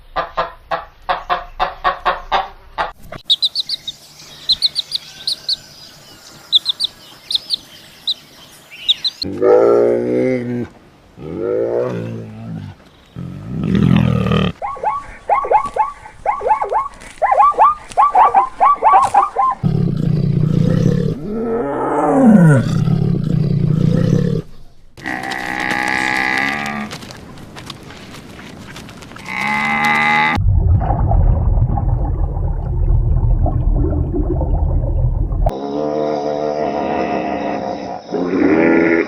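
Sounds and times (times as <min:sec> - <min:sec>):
short chirping animal calls: 0:03.2 - 0:05.6, 0:06.5 - 0:09.3, 0:14.6 - 0:19.6
rising and falling animal call: 0:08.9 - 0:27.0
long layered animal call: 0:14.6 - 0:24.4
low hum: 0:30.3 - 0:35.5
low rumble: 0:30.3 - 0:35.5.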